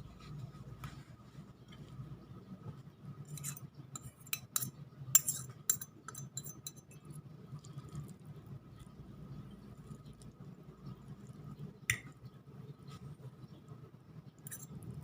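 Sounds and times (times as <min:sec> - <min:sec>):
faint steady hum: 0:00.0 - 0:15.0
utensils clinking against dishes: 0:03.3 - 0:07.0.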